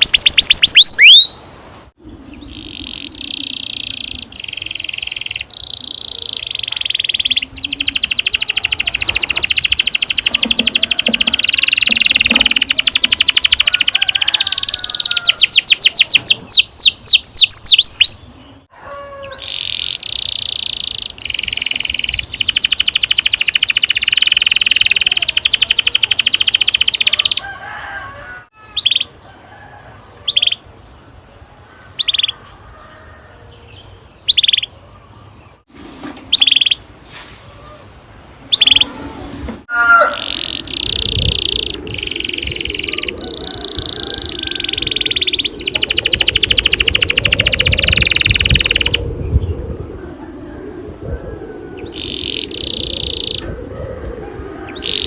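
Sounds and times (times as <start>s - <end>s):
canary singing: 0.0s - 1.4s, 2.3s - 27.4s, 28.3s - 29.2s, 30.2s - 30.7s, 33.7s - 35.6s, 36.3s - 36.9s, 38.4s - 49.5s, 51.8s - 53.5s.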